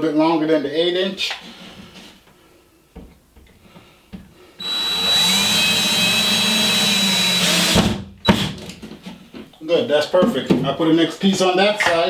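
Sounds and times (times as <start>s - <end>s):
power drill driving a screw: 4.6s - 8.0s.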